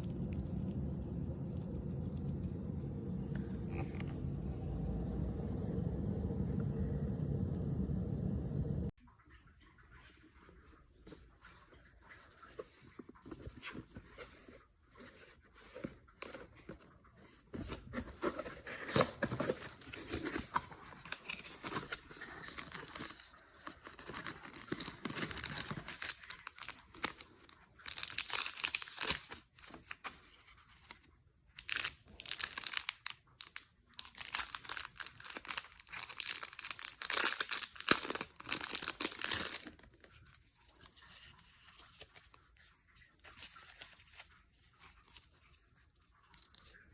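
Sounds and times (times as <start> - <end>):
crinkly material rustling: 10.3 - 46.9.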